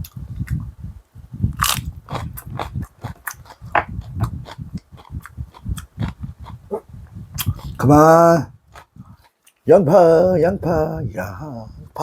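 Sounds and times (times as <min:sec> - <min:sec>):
person chewing crunchy food: 0:01.5 - 0:07.8, 0:08.7 - 0:09.6.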